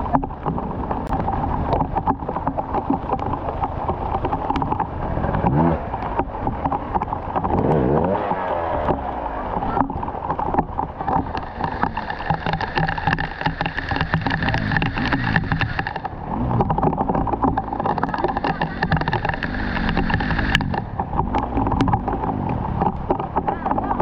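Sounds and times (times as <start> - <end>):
dense crackling rattle: 0.0 - 24.0
motorcycle engine revving: 3.8 - 24.0.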